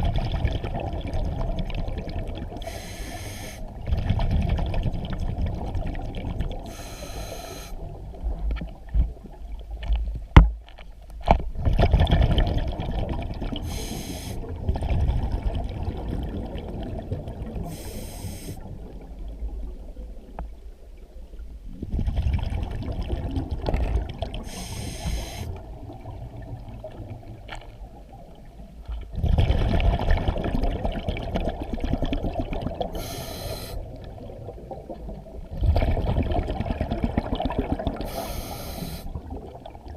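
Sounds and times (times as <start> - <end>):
exhaled bubbles rumbling: 0.0 - 10.5, 11.2 - 39.9
regulator breathing hisses: 2.6 - 3.7, 6.7 - 7.8, 13.7 - 14.4, 17.7 - 18.6, 24.5 - 25.5, 33.0 - 33.8, 38.1 - 39.1.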